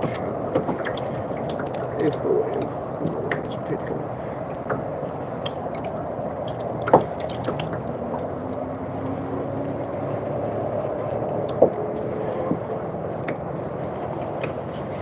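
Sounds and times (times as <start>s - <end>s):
water lapping against kayak hull: 0.0s - 15.0s.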